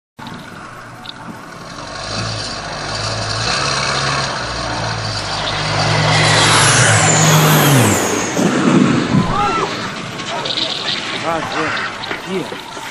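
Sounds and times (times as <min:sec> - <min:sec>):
aircraft engines running: 0:00.2 - 0:12.9.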